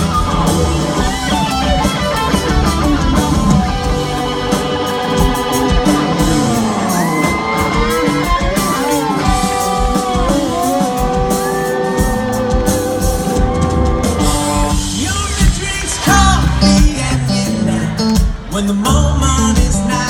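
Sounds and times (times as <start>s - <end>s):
electric guitar solo: 0.0s - 15.0s
live rock band playing: 0.0s - 20.0s.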